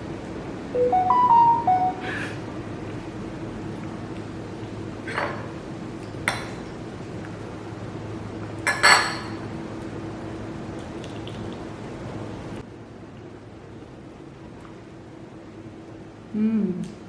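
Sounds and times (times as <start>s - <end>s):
dishes and utensils clinking: 8.7s - 9.4s.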